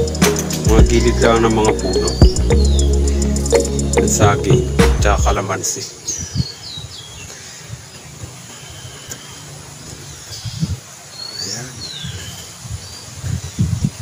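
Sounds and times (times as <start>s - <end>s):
birds chirping and whistling: 0.0s - 5.4s.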